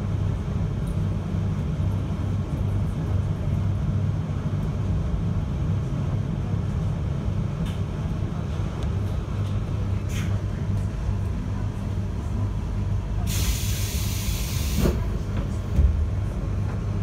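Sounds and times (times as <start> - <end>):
train running rumble: 0.0 - 17.0
air hiss: 13.3 - 15.0.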